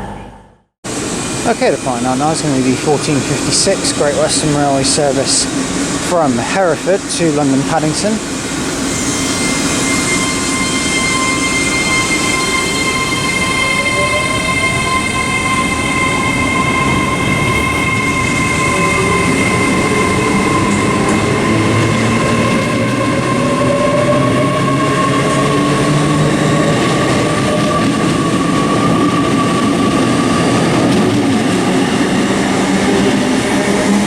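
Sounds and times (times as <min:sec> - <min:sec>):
train high whine: 0:00.0 - 0:34.0
train rumble: 0:00.0 - 0:34.0.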